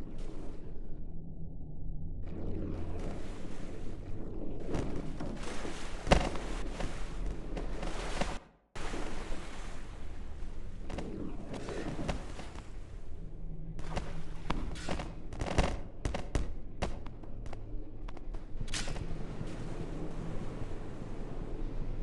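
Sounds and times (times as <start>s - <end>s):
wind: 0.0s - 22.0s
sharp cracks and knocks: 6.0s - 6.9s, 13.8s - 19.1s.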